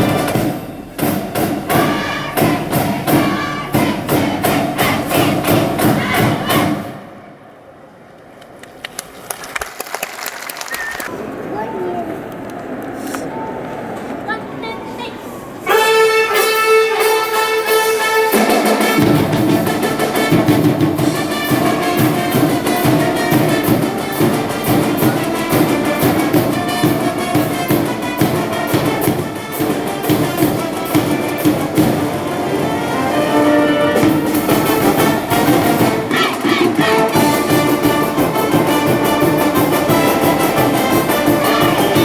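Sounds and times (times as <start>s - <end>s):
drums and low brass beat: 0.0s - 7.0s, 15.7s - 42.0s
held brass chord: 15.7s - 42.0s.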